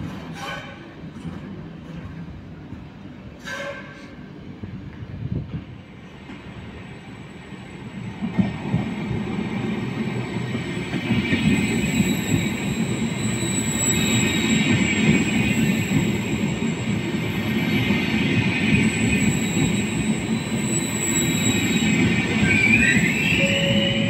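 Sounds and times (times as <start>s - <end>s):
train wheels rumbling: 0.0s - 24.0s
thin high squeal: 19.1s - 24.0s.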